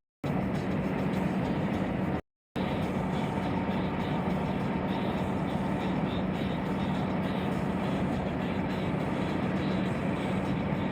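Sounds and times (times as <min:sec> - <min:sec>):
low engine hum: 0:00.2 - 0:10.9.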